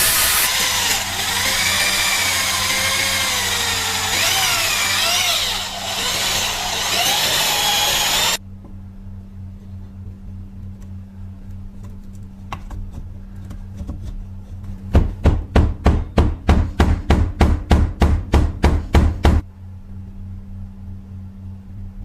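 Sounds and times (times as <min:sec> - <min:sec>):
low steady hum: 0:08.0 - 0:22.0.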